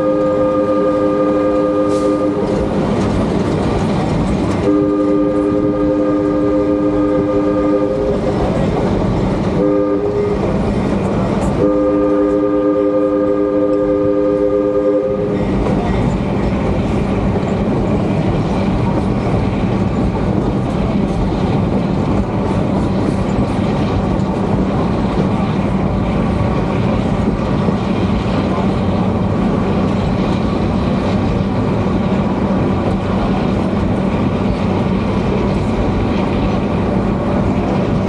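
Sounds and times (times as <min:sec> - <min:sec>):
train chime whistle: 0:00.0 - 0:02.5
train rumbling and clattering: 0:00.0 - 0:38.0.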